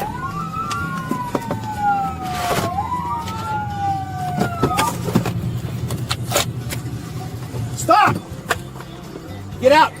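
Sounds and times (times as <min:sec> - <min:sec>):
police sirens wailing: 0:00.0 - 0:05.3, 0:07.9 - 0:08.2
road noise: 0:00.0 - 0:10.0
car engine drone: 0:01.7 - 0:09.5.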